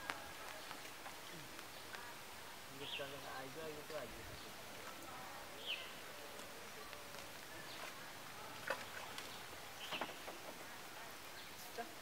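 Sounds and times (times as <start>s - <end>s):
bird chirps: 9.2s - 10.3s.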